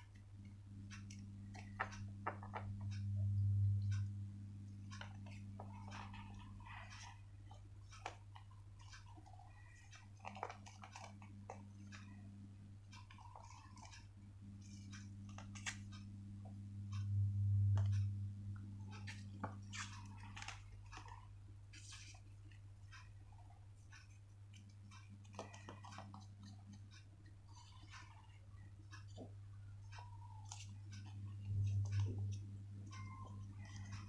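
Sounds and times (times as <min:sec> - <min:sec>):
low electrical hum: 0:00.0 - 0:34.0
paper folding clicks: 0:14.6 - 0:16.0, 0:18.9 - 0:22.6.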